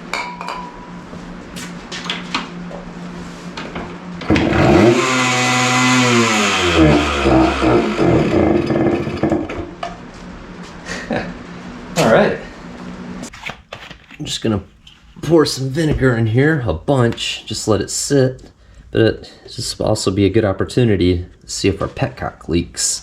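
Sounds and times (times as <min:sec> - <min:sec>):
two-stroke engine revving unevenly: 0:04.3 - 0:09.5.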